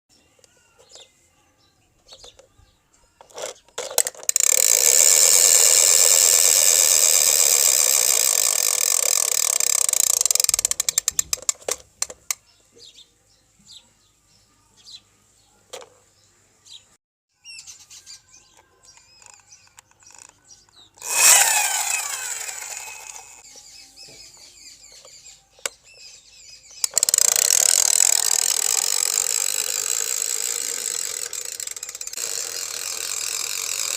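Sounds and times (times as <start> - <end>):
toy helicopter rotor whirring: 3.2 - 12.4, 18.5 - 23.5, 26.7 - 33.9
mechanism clicks: 3.3 - 12.4, 26.7 - 33.9.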